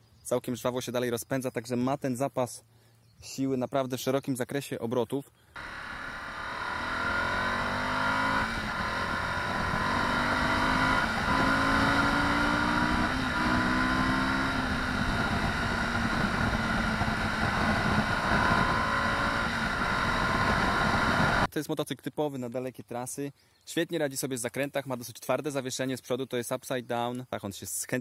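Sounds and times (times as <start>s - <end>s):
motorcycle engine accelerating: 5.6s - 21.5s
wind rush: 5.6s - 21.5s.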